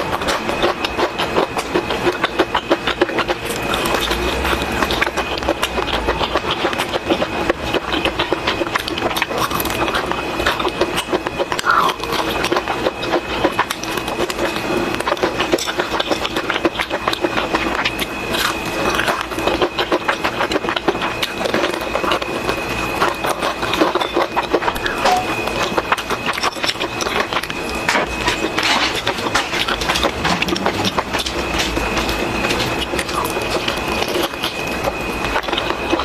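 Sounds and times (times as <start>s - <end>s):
chicken frying in hot oil: 0.0s - 36.0s
constant hum: 0.0s - 36.0s.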